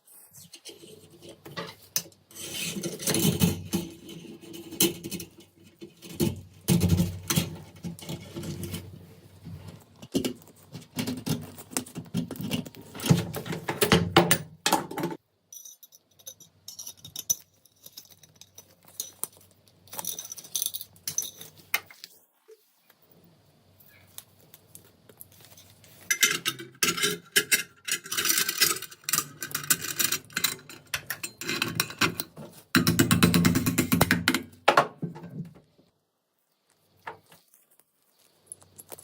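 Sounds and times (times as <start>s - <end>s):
metal rifle parts clinking: 25.6s - 32.2s.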